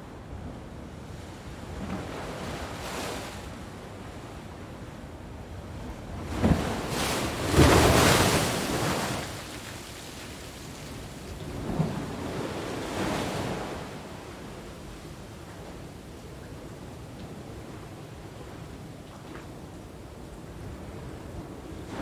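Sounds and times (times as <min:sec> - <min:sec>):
ocean waves breaking on beach: 0:06.3 - 0:22.0.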